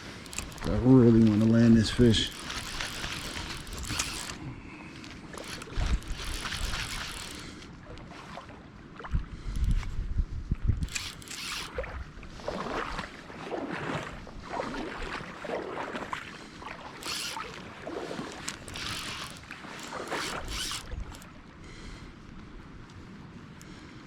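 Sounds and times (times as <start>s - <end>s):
wind buffeting microphone: 0.0s - 7.3s, 9.0s - 12.9s
river water splashing: 0.0s - 9.2s, 10.9s - 21.6s.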